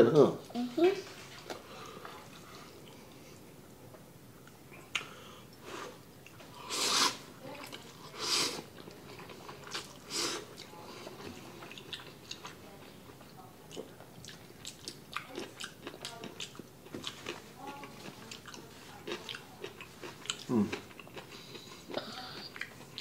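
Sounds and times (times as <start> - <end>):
close chewing with wet mouth clicks: 8.7 - 23.0.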